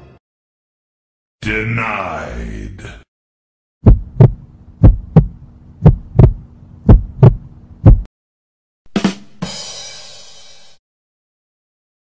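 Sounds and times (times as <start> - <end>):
heartbeat thumps: 3.8 - 8.1
rimshot drum hits and cymbal crash: 9.0 - 10.8.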